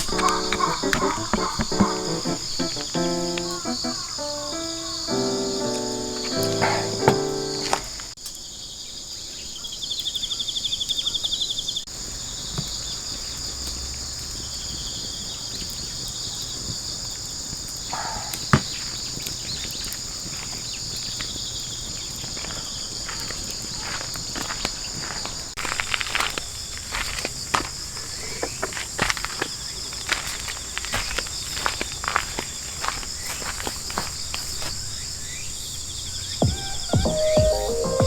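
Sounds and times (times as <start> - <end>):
pulsing insect trill: 0.0 - 8.0
insects chirping: 0.0 - 38.0.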